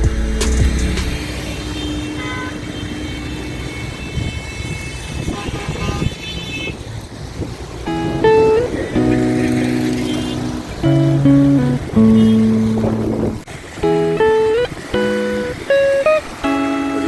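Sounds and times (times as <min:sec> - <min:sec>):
music with heavy bass: 0:00.0 - 0:01.3, 0:07.9 - 0:13.3
passing vehicles on wet street: 0:00.0 - 0:17.0
car horn toot: 0:00.4 - 0:06.8, 0:09.4 - 0:11.2, 0:12.0 - 0:12.9.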